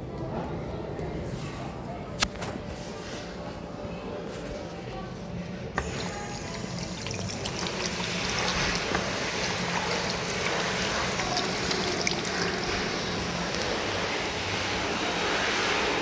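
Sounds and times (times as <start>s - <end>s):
water splashing into basin: 5.8s - 14.4s.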